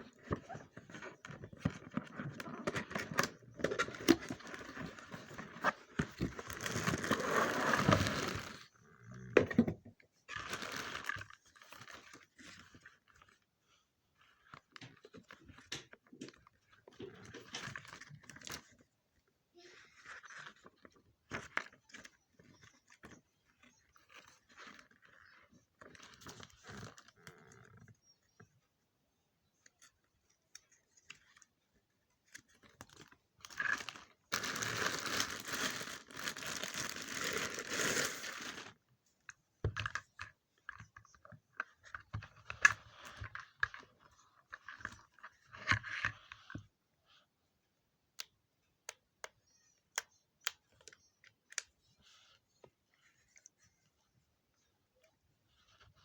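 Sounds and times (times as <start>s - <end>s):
packaging crinkling and tearing: 1.8s - 8.6s, 10.4s - 12.0s, 33.4s - 38.8s.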